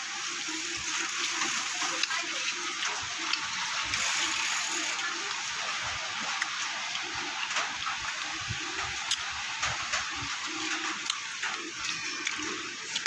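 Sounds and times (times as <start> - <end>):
wet chewing: 6.3 - 13.0.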